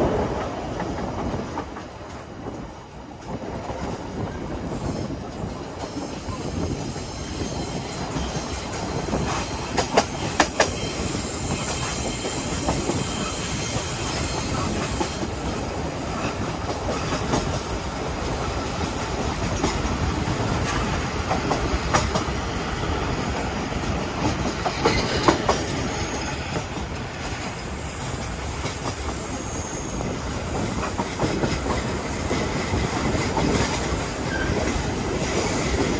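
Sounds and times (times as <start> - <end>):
train wheels rumbling on rails: 0.0 - 35.9.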